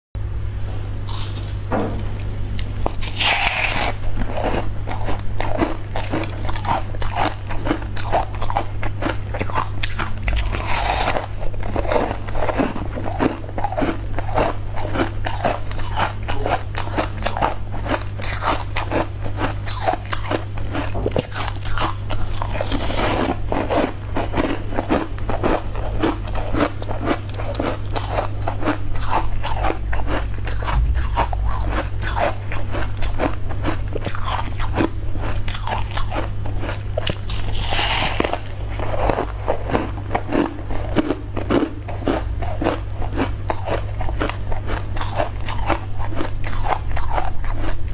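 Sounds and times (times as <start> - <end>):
low hum: 0.2 - 4.9, 27.4 - 35.1
person chewing cake: 1.0 - 47.9.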